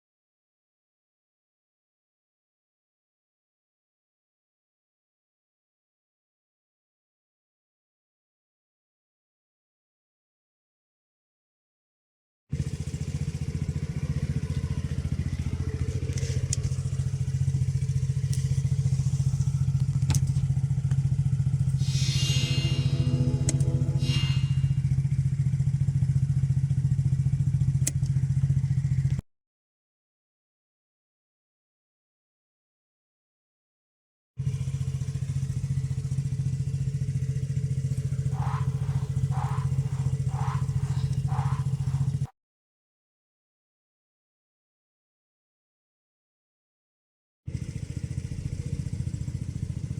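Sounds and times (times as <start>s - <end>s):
engine idling: 12.5s - 29.2s, 34.4s - 42.3s, 47.5s - 49.9s
car engine starting and idling: 12.8s - 25.1s
short high chirps: 21.8s - 24.8s.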